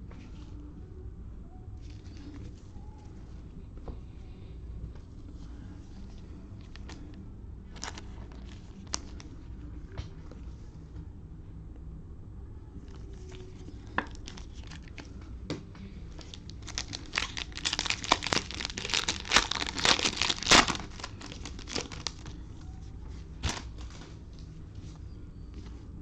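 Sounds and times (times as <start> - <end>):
cellophane wrapper crinkling and tearing: 7.7 - 9.2, 14.0 - 15.1, 16.2 - 22.4.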